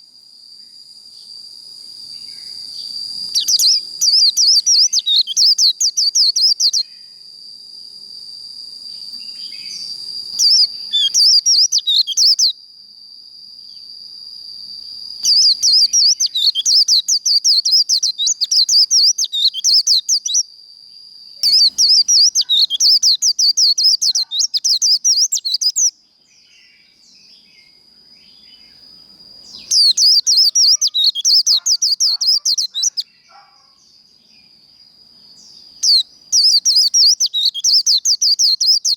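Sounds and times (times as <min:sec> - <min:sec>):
bird warbling song: 0:02.2 - 0:06.9, 0:09.2 - 0:12.5, 0:15.2 - 0:20.4, 0:21.4 - 0:34.0, 0:35.4 - 0:38.9.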